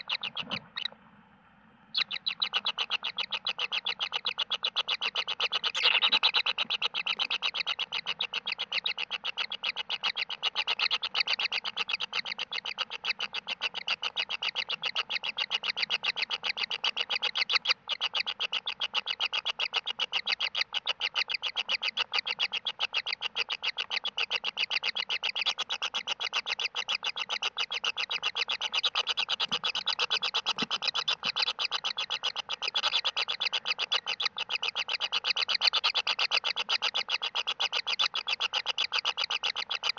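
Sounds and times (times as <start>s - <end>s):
nestlings rasping begging calls: 0.0s - 1.0s, 1.9s - 39.9s.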